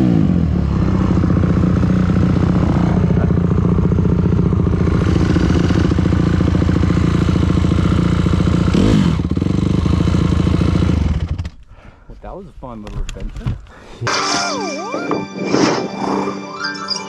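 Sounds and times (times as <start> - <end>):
dirt bike engine running: 0.0 - 11.7.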